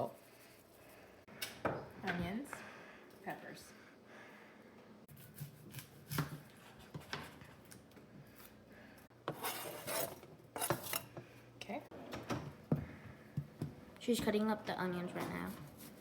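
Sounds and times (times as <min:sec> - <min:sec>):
scraping on cutting board: 0:09.3 - 0:11.1.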